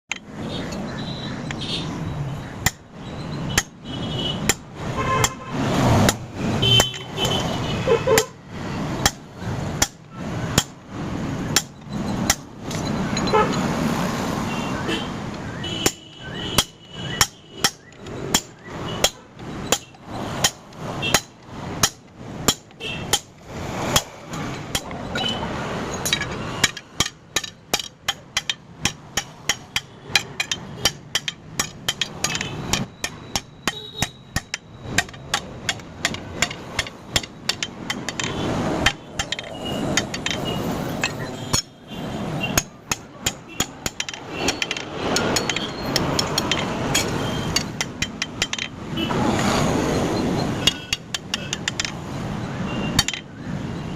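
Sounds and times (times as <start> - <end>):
hammer striking steel: 11.4 - 13.6, 15.8 - 49.2, 50.5 - 52.0, 52.9 - 53.3.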